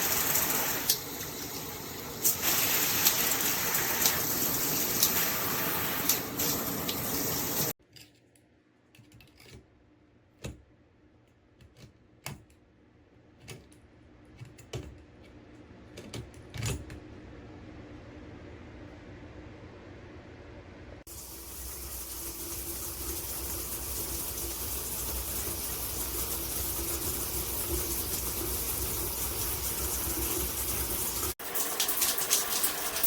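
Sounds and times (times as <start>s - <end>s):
water spraying from shower head: 0.0s - 7.8s, 21.1s - 33.0s.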